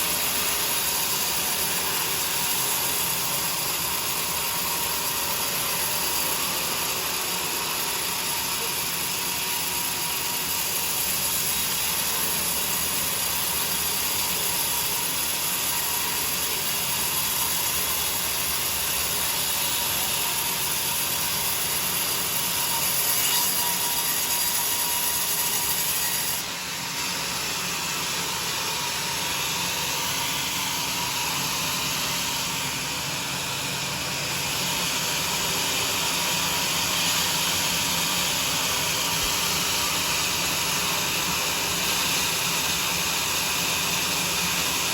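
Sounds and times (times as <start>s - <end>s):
saw cutting through log: 0.0s - 44.9s.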